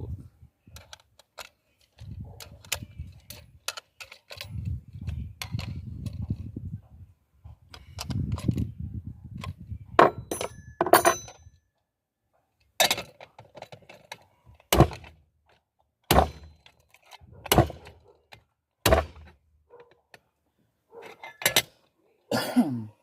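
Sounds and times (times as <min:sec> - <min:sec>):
sharp ringing metal knocks: 0:10.0 - 0:11.5, 0:16.1 - 0:16.7.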